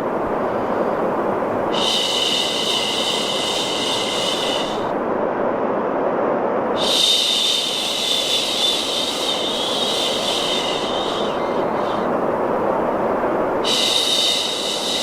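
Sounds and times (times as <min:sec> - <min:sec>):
white noise: 0:00.0 - 0:15.0
person shushing: 0:01.7 - 0:04.9, 0:06.8 - 0:12.2, 0:13.6 - 0:15.0.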